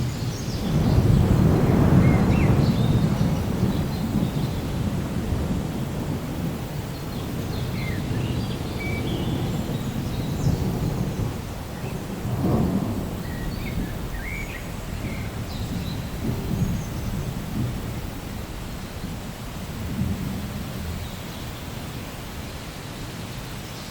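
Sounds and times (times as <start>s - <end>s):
thunder rumbling: 0.0s - 22.7s
steady rain: 0.0s - 23.9s.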